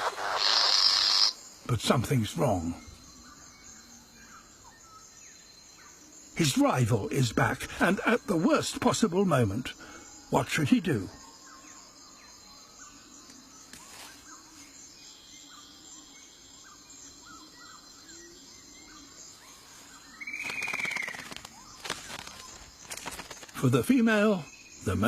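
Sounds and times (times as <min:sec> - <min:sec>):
buzzy rattling bird call: 0:00.0 - 0:01.4, 0:20.2 - 0:23.6.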